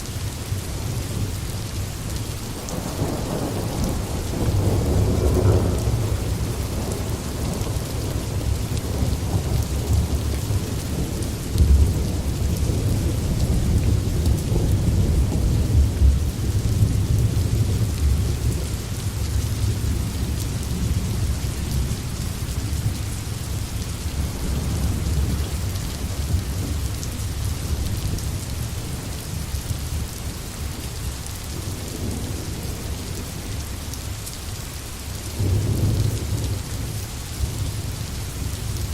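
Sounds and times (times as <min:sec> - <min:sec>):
rain hissing in forest: 0:00.0 - 0:38.9.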